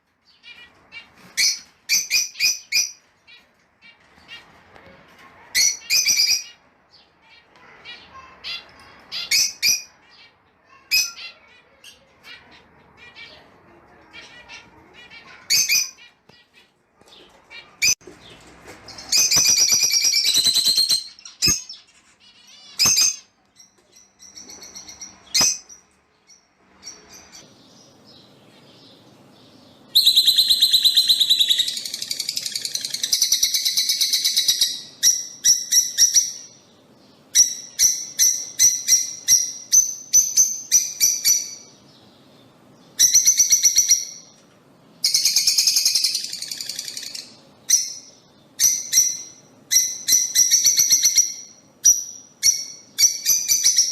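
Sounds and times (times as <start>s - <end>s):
lovebirds chirping and shrieking: 0.0s - 53.9s.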